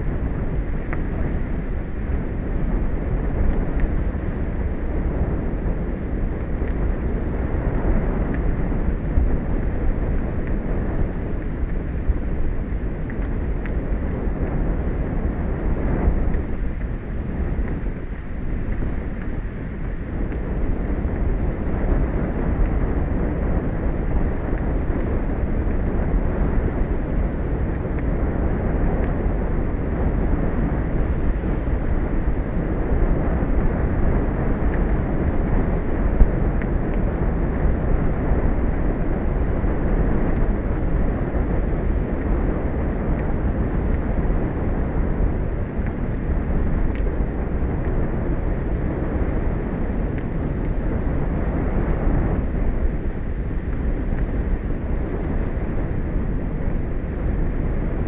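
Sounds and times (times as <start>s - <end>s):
sea: 0.0s - 58.0s
wind: 0.0s - 58.0s.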